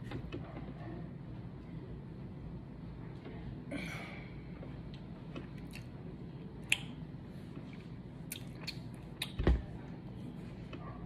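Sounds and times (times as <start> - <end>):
close-up wet chewing: 7.7 - 9.4.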